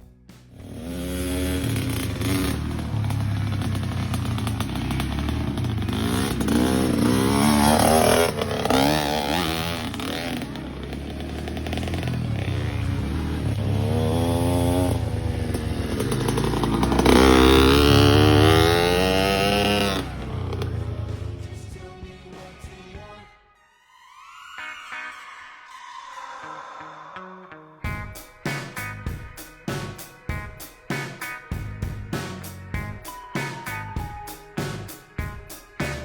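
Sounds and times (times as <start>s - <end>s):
dirt bike engine revving: 0.5s - 22.0s, 35.8s - 36.0s.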